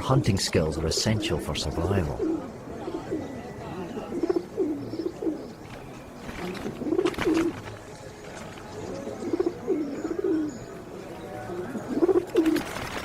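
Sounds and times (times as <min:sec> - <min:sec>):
pigeons cooing: 0:00.0 - 0:13.0
sharp rustling: 0:05.6 - 0:09.0, 0:12.2 - 0:13.0.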